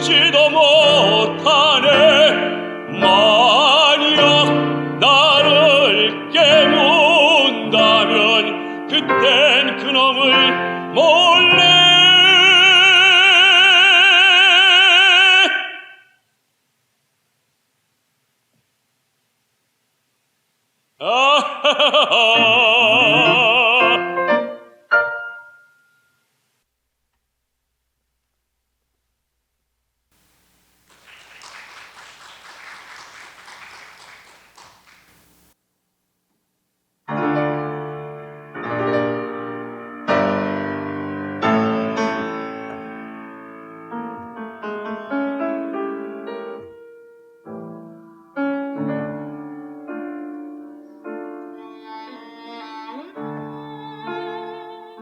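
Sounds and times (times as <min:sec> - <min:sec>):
piano chords: 0:22.4 - 0:26.1, 0:37.1 - 0:55.0
people clapping: 0:30.6 - 0:35.6.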